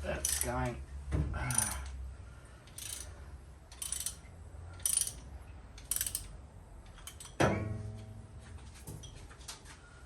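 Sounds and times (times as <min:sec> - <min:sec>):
ratchet wrench clicking: 0:00.2 - 0:00.6, 0:01.5 - 0:02.0, 0:02.6 - 0:07.4.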